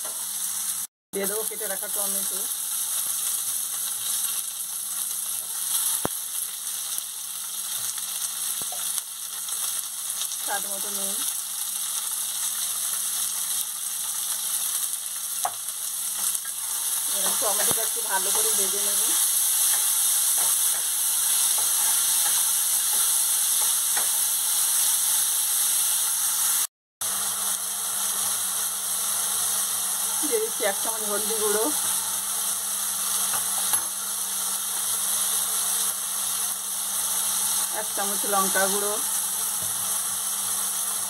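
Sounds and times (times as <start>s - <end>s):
food sizzling in hot oil: 0.0s - 41.0s.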